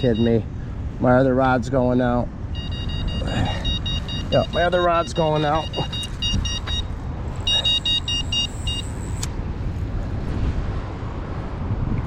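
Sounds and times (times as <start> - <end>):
bite alarm beeping: 0.0 - 0.4, 2.5 - 9.3.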